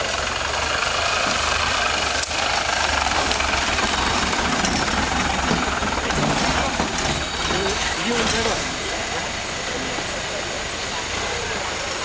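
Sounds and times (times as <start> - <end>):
vehicle engine throbbing: 0.0 - 12.0.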